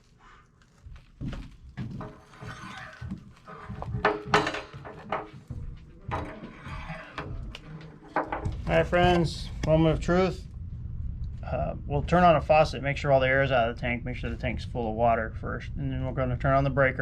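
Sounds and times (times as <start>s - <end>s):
tools and metal parts clattering: 1.9s - 9.4s.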